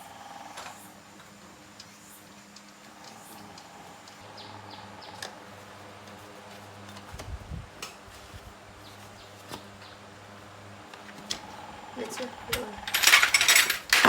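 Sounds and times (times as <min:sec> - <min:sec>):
steady low hum: 0:00.0 - 0:14.0
small metal tools clicking: 0:12.2 - 0:14.0.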